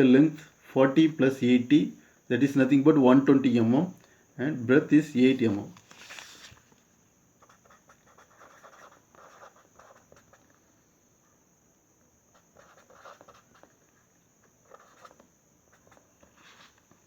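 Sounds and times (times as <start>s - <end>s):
pen scratching handwriting: 7.4s - 10.6s, 12.3s - 13.8s, 14.6s - 16.9s.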